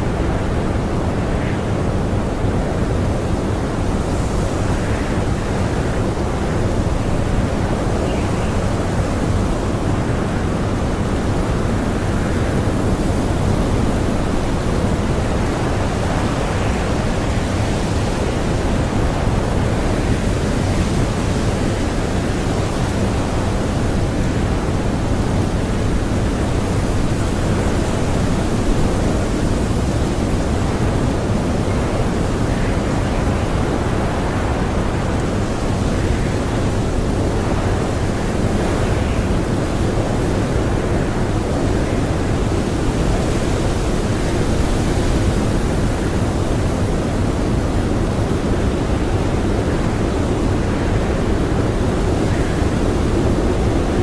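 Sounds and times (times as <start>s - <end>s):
strong blizzard wind: 0.0s - 54.0s.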